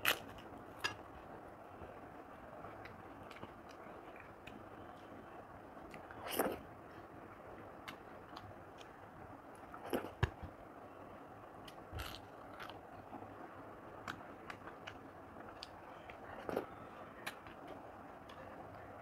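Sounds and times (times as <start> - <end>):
crunching of fried papad: 0.0 - 1.0.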